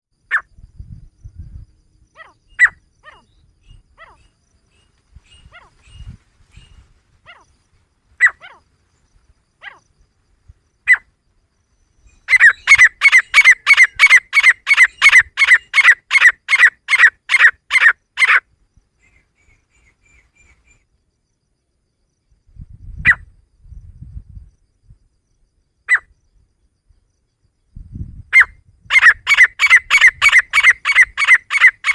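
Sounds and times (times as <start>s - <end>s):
francolin calling: 0.2s - 0.6s, 2.0s - 20.9s, 25.8s - 26.6s, 27.2s - 31.9s.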